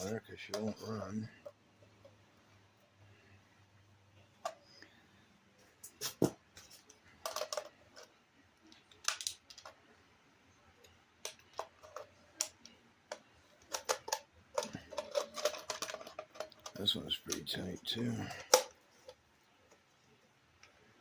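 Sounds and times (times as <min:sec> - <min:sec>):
hard plastic parts clicking: 0:05.8 - 0:09.8, 0:10.8 - 0:19.8.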